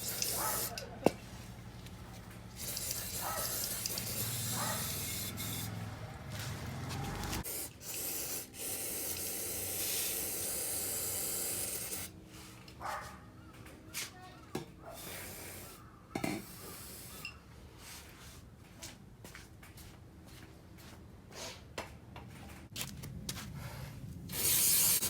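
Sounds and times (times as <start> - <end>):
aerosol can spraying: 0.0 - 0.8, 2.6 - 5.7, 7.4 - 12.1, 24.3 - 25.0.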